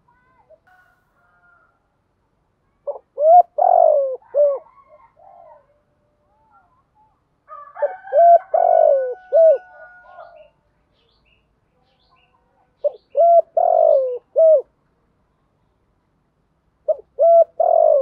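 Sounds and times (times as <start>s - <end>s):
dove cooing: 2.9s - 5.7s, 7.8s - 10.5s, 12.8s - 14.7s, 16.8s - 18.0s.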